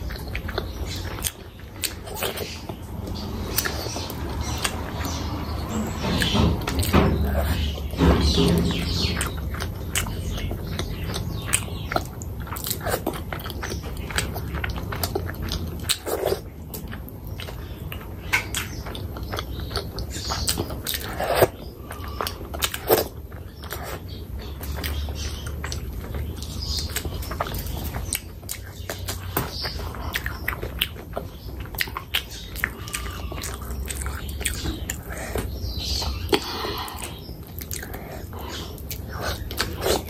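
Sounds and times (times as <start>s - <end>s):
wet chewing: 0.0s - 40.0s
mouth smacks and clicks: 8.7s - 40.0s.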